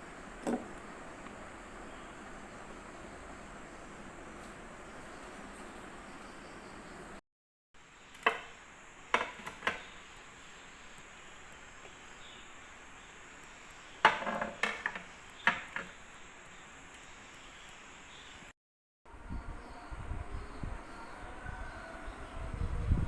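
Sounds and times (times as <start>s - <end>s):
faint steady hiss: 0.0s - 7.2s, 7.8s - 18.5s.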